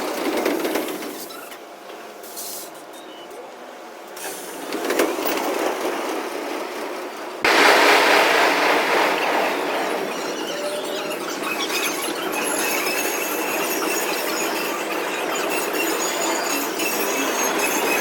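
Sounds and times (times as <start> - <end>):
train running: 0.0 - 18.0.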